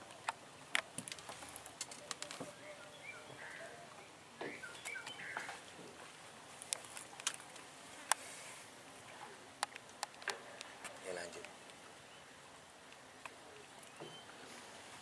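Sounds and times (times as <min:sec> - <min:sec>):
birds chirping: 0:01.5 - 0:06.1, 0:10.9 - 0:12.5, 0:13.2 - 0:14.5.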